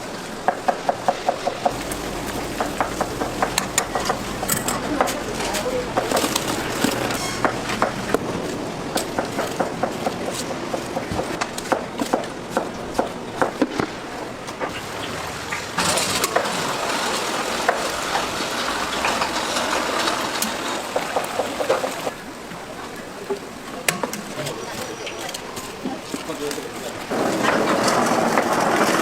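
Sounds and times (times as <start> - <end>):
steady background noise: 0.0 - 29.0
utensils and dishes clattering: 1.6 - 8.5, 14.6 - 22.1.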